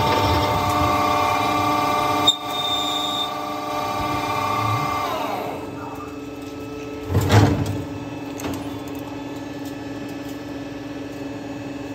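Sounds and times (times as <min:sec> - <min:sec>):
lathe humming: 0:00.0 - 0:07.0.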